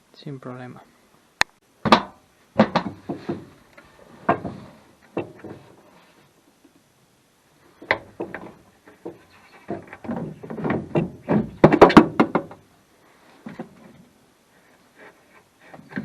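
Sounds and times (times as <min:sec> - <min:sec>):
knocks and clunks of tools: 0:01.8 - 0:03.5, 0:04.2 - 0:05.7, 0:07.8 - 0:12.6, 0:15.7 - 0:16.0.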